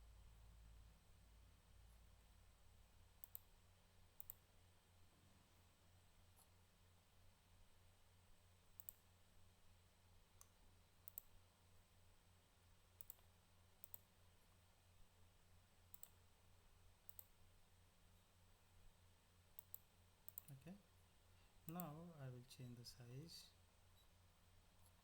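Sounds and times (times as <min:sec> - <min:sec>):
low steady hum: 0:00.0 - 0:25.0
computer mouse clicks: 0:03.2 - 0:03.5, 0:04.2 - 0:04.4, 0:08.8 - 0:09.0, 0:10.4 - 0:11.4, 0:13.0 - 0:14.1, 0:15.9 - 0:16.2, 0:17.1 - 0:17.3, 0:19.6 - 0:20.6, 0:21.7 - 0:22.0.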